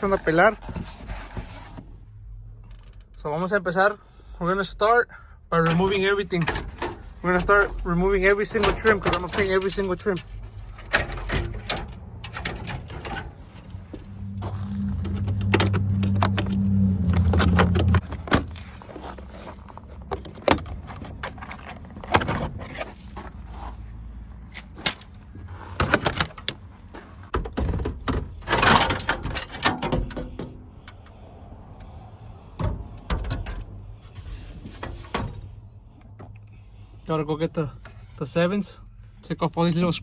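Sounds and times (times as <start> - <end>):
low steady hum: 5.1 - 18.1.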